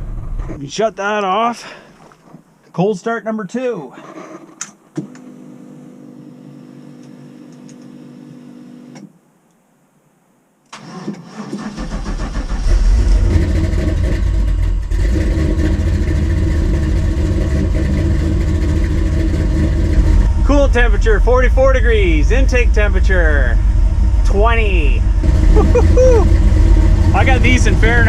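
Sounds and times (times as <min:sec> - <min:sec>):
engine fast cold idle: 0:10.8 - 0:20.5, 0:25.0 - 0:28.0
faint steady hum: 0:20.1 - 0:28.0.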